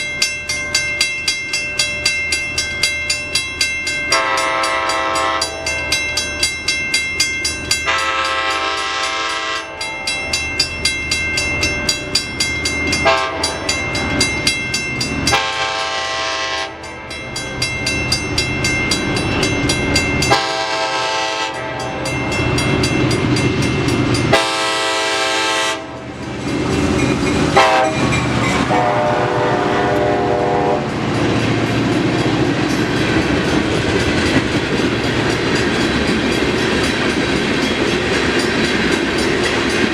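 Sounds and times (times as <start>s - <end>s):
passing train rumble: 0.0s - 39.9s
train horn blasts: 4.1s - 5.7s, 7.8s - 10.0s, 13.0s - 13.6s, 15.3s - 16.9s, 20.3s - 22.1s, 24.3s - 26.1s, 27.5s - 31.1s
train wheels clicking over rail joints: 25.2s - 28.9s, 30.8s - 39.9s.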